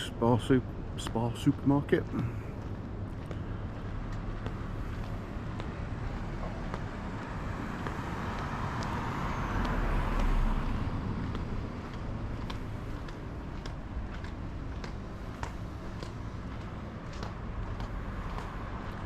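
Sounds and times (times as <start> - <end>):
street traffic: 0.0 - 19.0
car passing by: 4.7 - 13.0.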